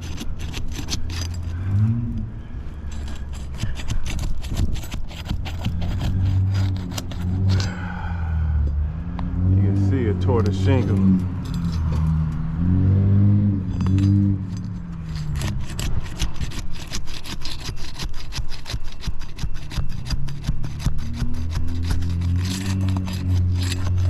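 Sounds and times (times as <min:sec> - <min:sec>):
shingle tearing and scraping: 0:00.0 - 0:02.0, 0:02.8 - 0:08.0, 0:13.7 - 0:24.0.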